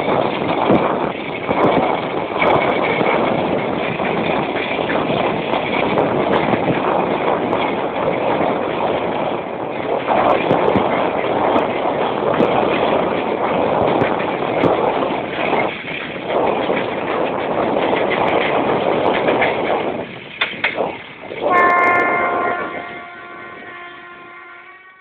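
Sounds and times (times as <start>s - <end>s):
train rushing past: 0.0s - 25.0s
train horn chord: 21.5s - 25.0s.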